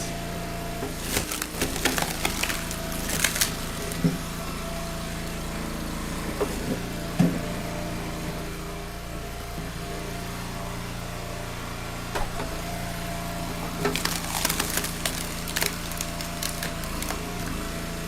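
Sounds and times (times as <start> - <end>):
log splitter engine running: 0.0 - 18.0
dull thumps of wood pieces: 0.8 - 4.8, 6.2 - 7.6
wood cracking and snapping: 0.8 - 5.5, 13.6 - 17.9.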